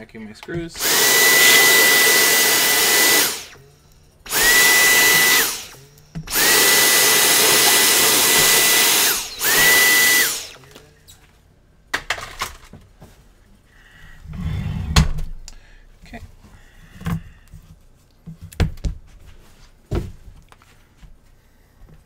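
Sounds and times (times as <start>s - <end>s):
small vacuum cleaner whining: 0.7s - 11.0s.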